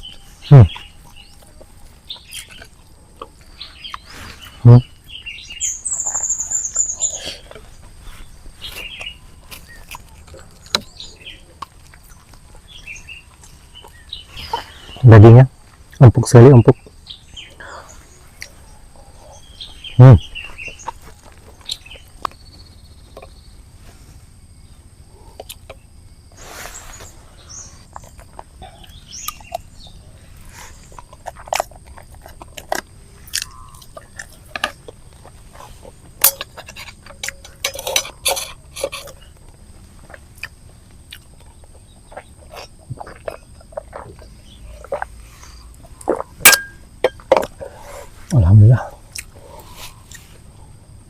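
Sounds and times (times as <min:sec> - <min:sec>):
person chewing: 0:00.0 - 0:04.4, 0:07.2 - 0:10.9, 0:25.2 - 0:25.8, 0:30.4 - 0:46.6, 0:47.3 - 0:50.2
utensils clinking against a dish: 0:36.2 - 0:39.3.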